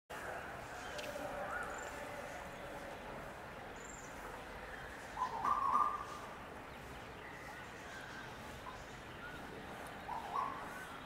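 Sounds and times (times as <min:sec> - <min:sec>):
outdoor background noise: 0:00.1 - 0:11.0
bird calls: 0:04.8 - 0:11.0.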